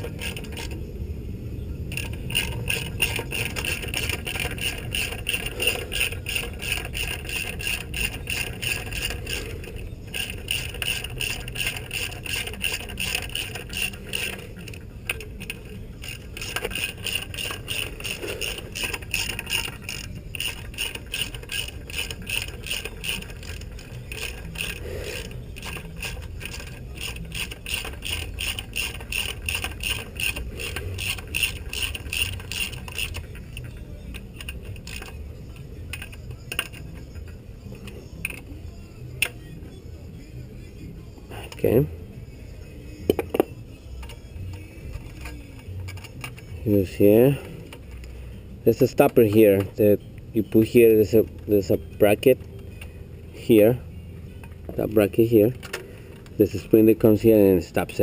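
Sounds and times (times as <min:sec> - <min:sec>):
ratchet wrench clicking: 0:00.0 - 0:00.8, 0:01.9 - 0:35.2, 0:35.9 - 0:38.5, 0:43.1 - 0:48.1.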